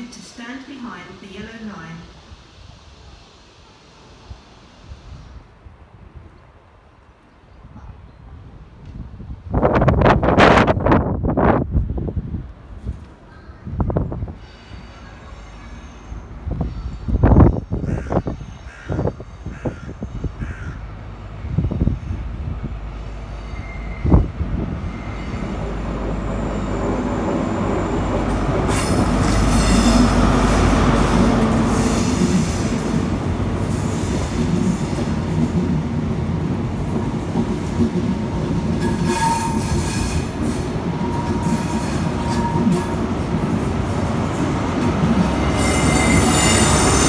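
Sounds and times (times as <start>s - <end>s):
diesel train rumbling past: 0.0s - 47.0s
wheels squealing: 45.3s - 47.0s.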